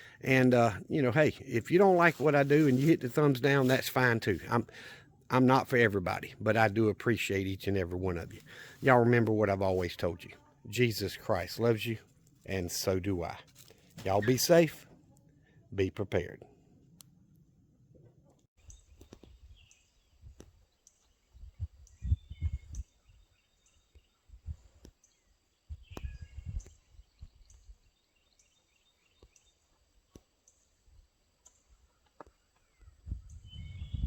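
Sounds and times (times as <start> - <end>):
birds chirping: 18.6 - 34.0.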